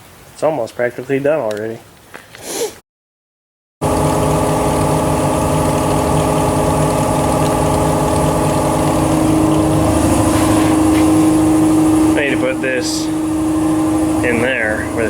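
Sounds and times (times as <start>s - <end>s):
engine running steadily: 3.8s - 15.0s.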